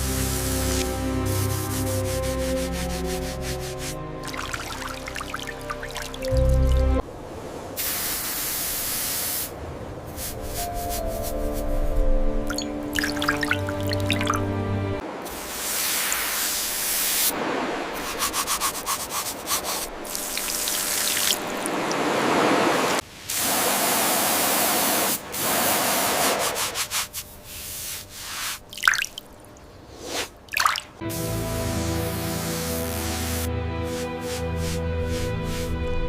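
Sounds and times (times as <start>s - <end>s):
hissing and scrubbing: 15.3s - 21.2s.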